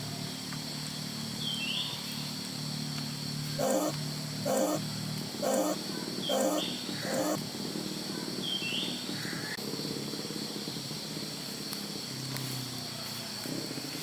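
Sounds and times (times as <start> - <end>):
steady high-pitched hum: 3.3 - 7.8.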